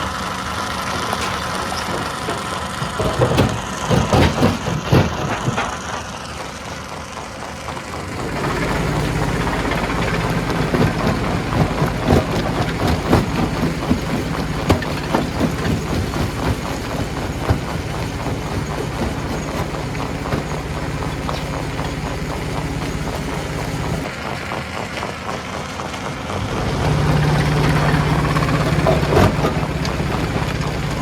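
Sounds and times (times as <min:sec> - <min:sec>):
stone crusher machine drone: 0:00.0 - 0:31.0
rocks cracking and knocking: 0:01.1 - 0:06.2, 0:08.7 - 0:24.1, 0:28.3 - 0:31.0.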